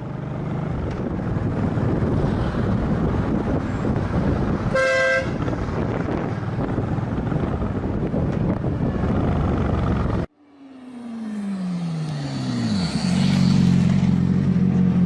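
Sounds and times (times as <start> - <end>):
wind and road noise: 0.0 - 15.0
vehicle horn toot: 4.7 - 5.5.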